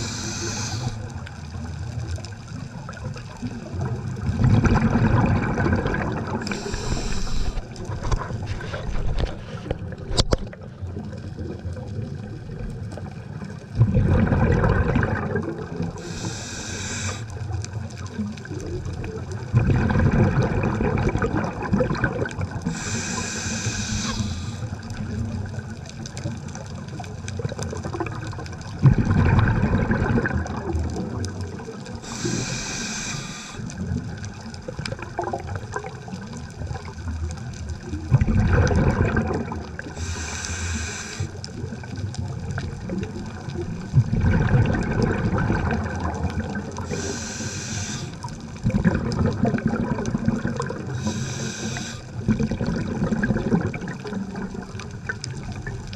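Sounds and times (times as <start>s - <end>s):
regulator inhalation hiss: 0.0s - 1.1s, 6.4s - 7.7s, 16.0s - 17.4s, 22.6s - 24.8s, 32.0s - 33.7s, 40.0s - 41.4s, 46.8s - 48.3s, 50.9s - 52.2s
gurgling bubbles rushing: 0.0s - 55.9s.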